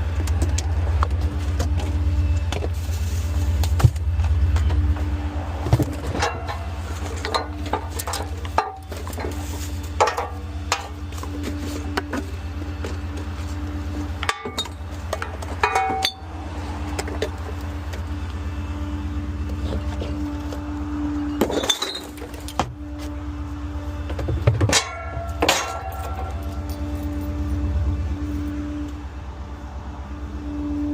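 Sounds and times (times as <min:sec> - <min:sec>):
garbage truck engine running: 0:00.0 - 0:30.9
metal clinks and clanks: 0:14.2 - 0:16.3, 0:24.7 - 0:27.3.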